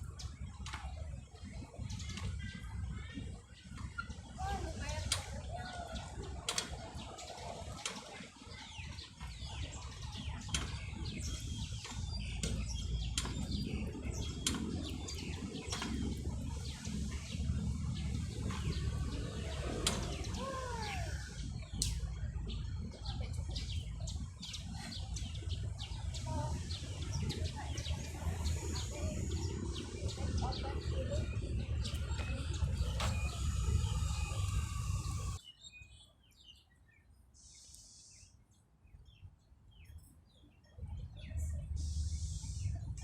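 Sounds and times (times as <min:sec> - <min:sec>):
small birds chirping: 0:00.0 - 0:43.0
steady low rumble: 0:08.7 - 0:35.4.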